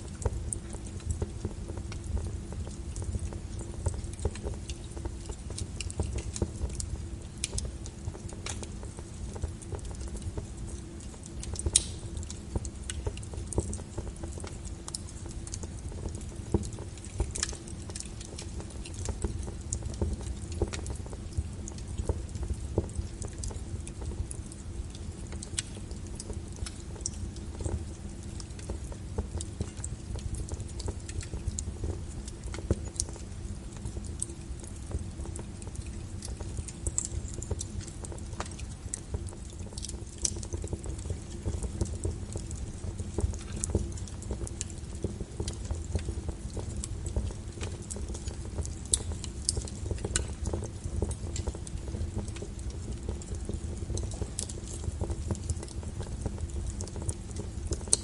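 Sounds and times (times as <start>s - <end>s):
low rumble of fire: 0.0s - 58.0s
wood logs crackling and popping: 0.0s - 58.0s.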